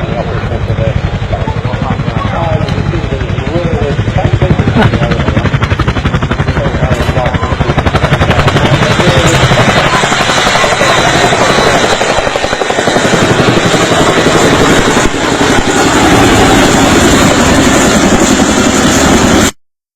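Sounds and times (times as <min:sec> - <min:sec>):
helicopter rotor blades beating: 0:00.0 - 0:19.6.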